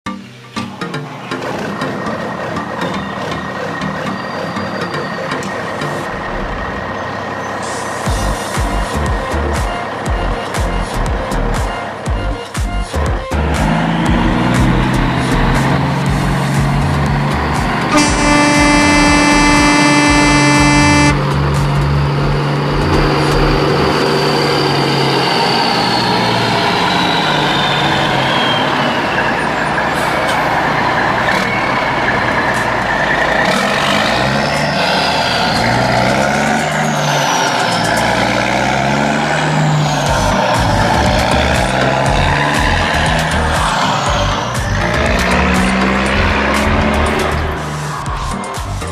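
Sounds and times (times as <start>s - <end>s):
noisy running sound sliding pitch: 1.2s - 48.5s
horn held note: 17.6s - 21.4s.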